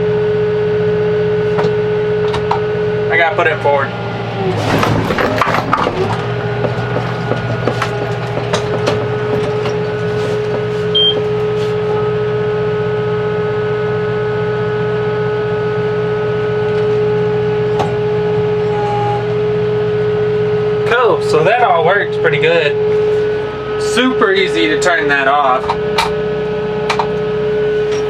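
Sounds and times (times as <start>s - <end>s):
tractor engine drone: 0.0s - 28.0s
clicks and knocks: 4.6s - 11.4s.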